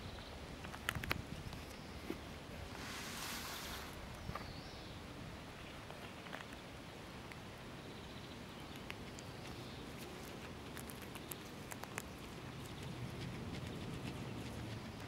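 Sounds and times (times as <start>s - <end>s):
guinea pigs chewing grass: 5.6s - 15.0s.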